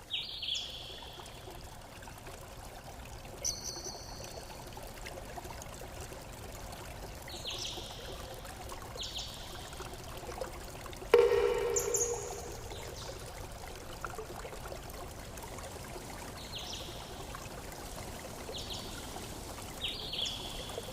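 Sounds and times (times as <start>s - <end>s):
water trickling: 0.0s - 20.9s.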